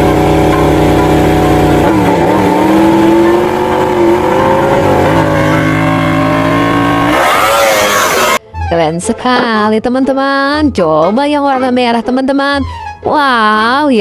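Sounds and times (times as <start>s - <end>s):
racing engine revving: 0.0s - 8.4s.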